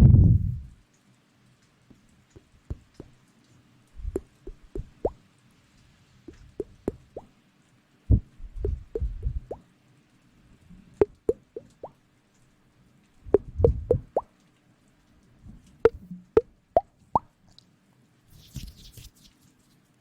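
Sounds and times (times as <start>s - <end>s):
low rustling rumble: 0.0s - 0.8s, 8.1s - 9.6s, 13.2s - 14.2s
wet plops and clicks: 1.9s - 5.2s, 6.3s - 7.3s, 8.1s - 9.6s, 11.0s - 12.0s, 13.3s - 14.5s.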